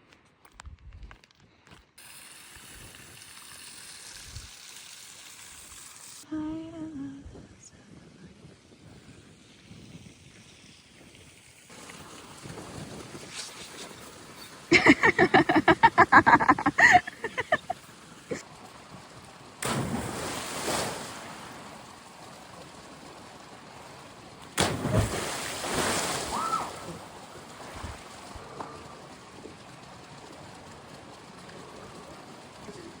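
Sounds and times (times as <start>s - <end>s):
people splashing into water: 11.7s - 18.4s, 19.6s - 22.8s, 24.5s - 28.9s.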